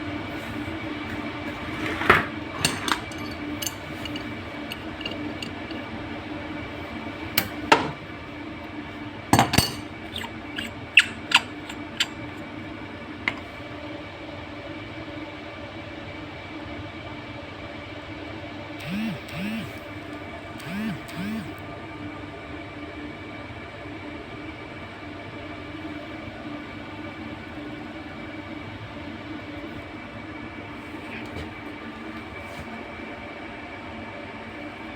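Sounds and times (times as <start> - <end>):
steady machine hum: 0.0 - 14.6, 18.5 - 34.9
metal tools clinking and knocking: 2.6 - 5.9, 7.4 - 7.9, 9.4 - 12.2.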